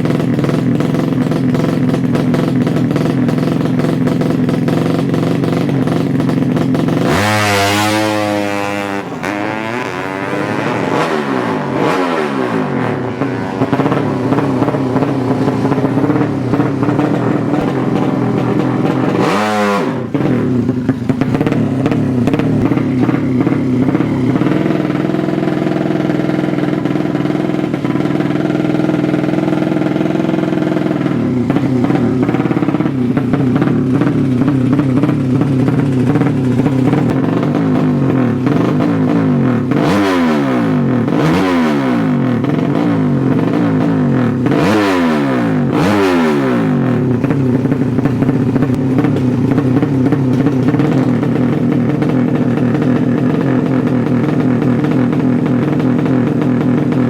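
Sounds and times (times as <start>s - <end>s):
motorcycle engines revving high: 0.0s - 57.0s.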